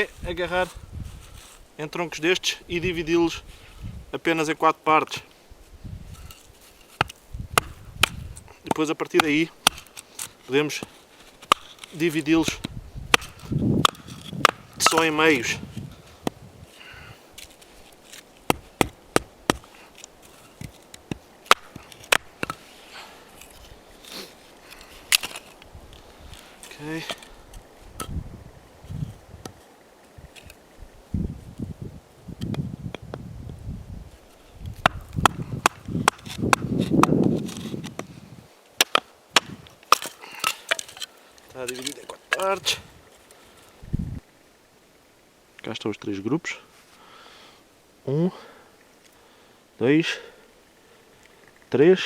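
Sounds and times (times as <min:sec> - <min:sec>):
wood splitting strikes: 0:06.2 - 0:15.6, 0:16.2 - 0:22.7, 0:23.3 - 0:25.6, 0:34.7 - 0:38.1, 0:38.8 - 0:42.7.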